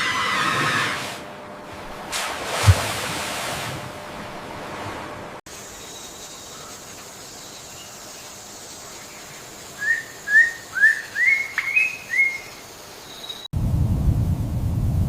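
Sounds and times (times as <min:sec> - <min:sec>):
steady hiss: 0:05.5 - 0:13.5
bird whistling upward notes: 0:09.8 - 0:12.5
low wind-like rumble: 0:13.5 - 0:15.0.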